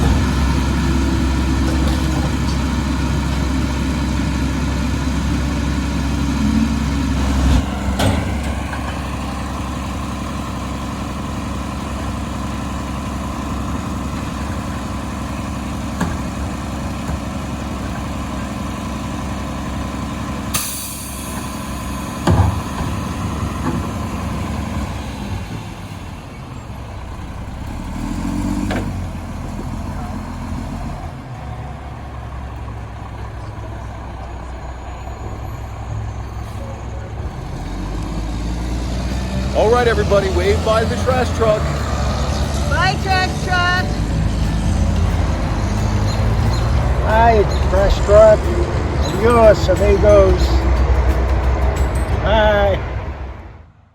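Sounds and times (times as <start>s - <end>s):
diesel truck engine running: 0.0s - 53.9s
air brakes hissing: 20.5s - 24.2s.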